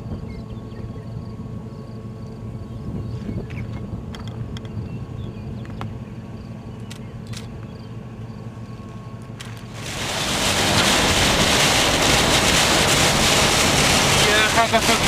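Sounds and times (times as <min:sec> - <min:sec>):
low steady hum: 0:00.0 - 0:15.0
strong wind gust rushing: 0:09.8 - 0:15.0.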